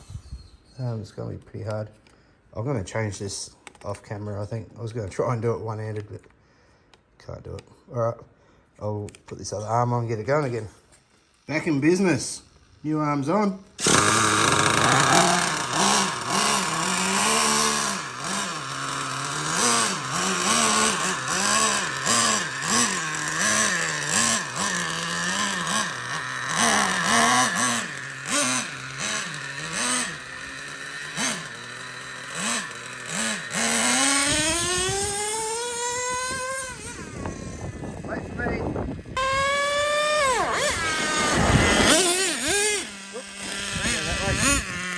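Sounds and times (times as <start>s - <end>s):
rc truck engine revving: 11.1s - 44.9s.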